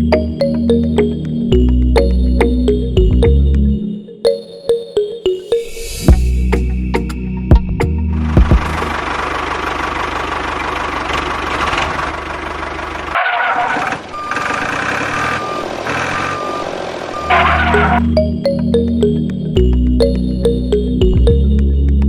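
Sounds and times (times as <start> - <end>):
tractor engine chugging: 8.2 - 18.3.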